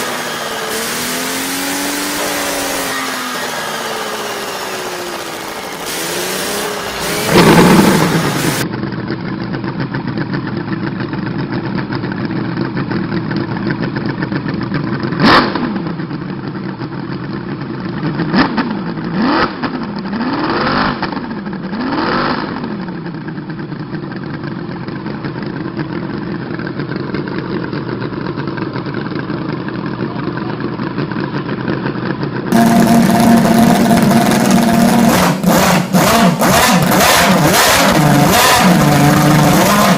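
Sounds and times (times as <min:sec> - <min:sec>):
louder model engine: 0:00.0 - 0:08.6, 0:32.5 - 0:39.9
model engine droning: 0:00.0 - 0:08.6, 0:32.5 - 0:39.9
model engine throttle blips: 0:00.0 - 0:08.6, 0:32.5 - 0:39.9.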